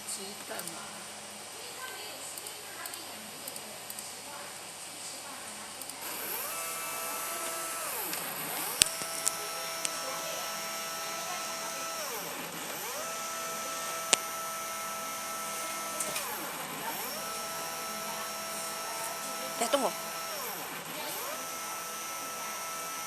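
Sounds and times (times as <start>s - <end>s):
stepper motors whining: 6.0s - 23.0s
sharp clicks: 7.3s - 10.0s, 14.1s - 14.3s.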